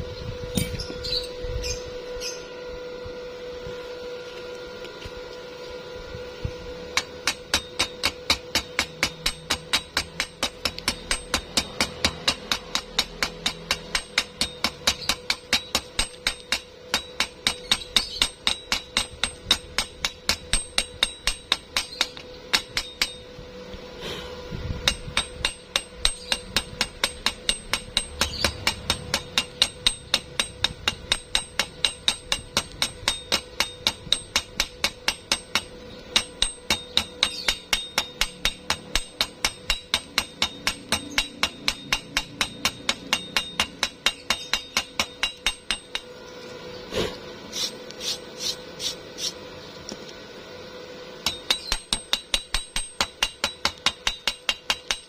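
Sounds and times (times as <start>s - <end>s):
hammer striking metal: 7.0s - 23.3s, 24.8s - 46.1s, 51.2s - 55.0s.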